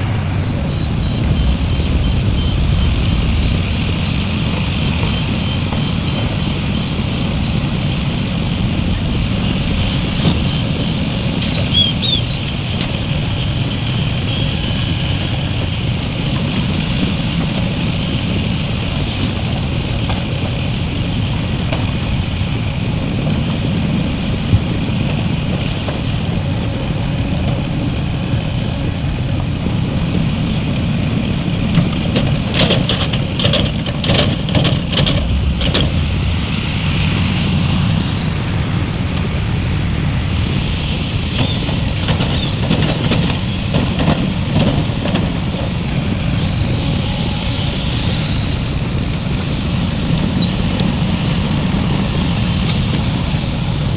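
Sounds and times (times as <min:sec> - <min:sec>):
diesel machinery engine rumble: 0:00.0 - 0:53.9
metal knocks and clanks: 0:31.8 - 0:37.3.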